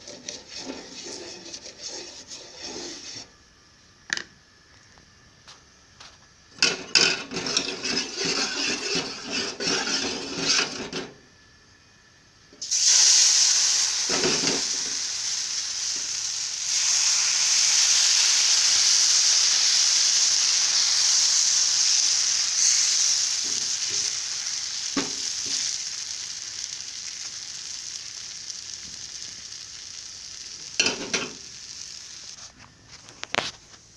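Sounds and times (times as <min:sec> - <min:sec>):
batter stirred in a vessel: 0:00.0 - 0:03.3, 0:07.3 - 0:10.7
batter sizzling on hot pan: 0:00.0 - 0:03.4, 0:06.0 - 0:11.1, 0:12.5 - 0:33.6.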